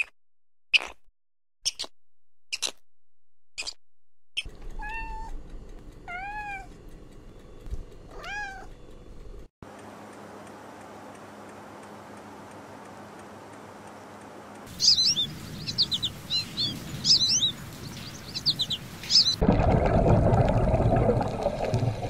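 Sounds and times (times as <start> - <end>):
short squeaky calls: 0.7 - 1.0, 1.6 - 1.9, 3.6 - 3.8, 14.7 - 17.5, 19.1 - 19.4
cat meowing: 4.7 - 5.4, 6.0 - 6.7, 8.1 - 8.7.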